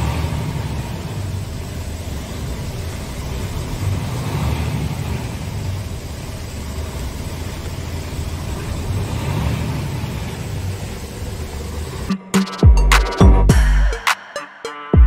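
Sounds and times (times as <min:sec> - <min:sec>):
truck diesel engine running: 0:00.0 - 0:14.0
hip-hop beat with deep bass: 0:12.1 - 0:15.0.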